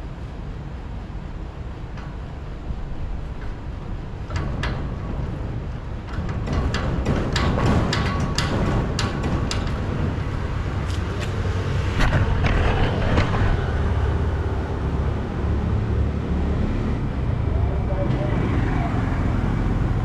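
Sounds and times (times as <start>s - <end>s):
road traffic rumble: 0.0s - 20.0s
sharp clicks and knocks: 4.2s - 14.2s.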